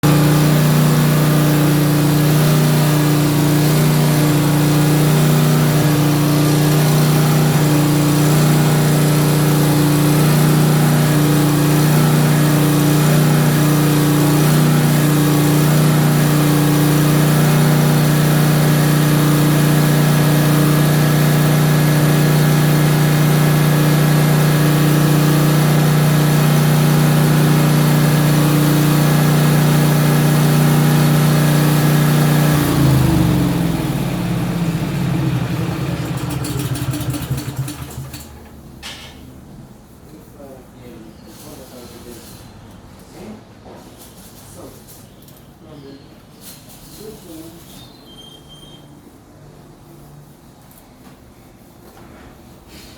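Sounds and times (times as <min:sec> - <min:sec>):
generator engine humming: 0:00.0 - 0:38.8.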